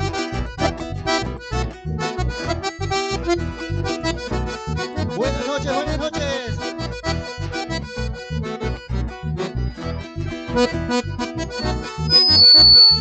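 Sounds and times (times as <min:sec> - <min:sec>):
accordion dance music: 0:00.0 - 0:13.0
short gliding cry: 0:11.6 - 0:13.0.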